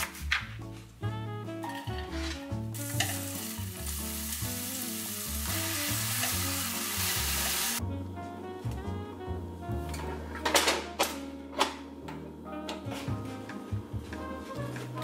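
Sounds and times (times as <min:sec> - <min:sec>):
background music: 0:00.0 - 0:15.0
vegetables sizzling in oil: 0:02.8 - 0:07.8.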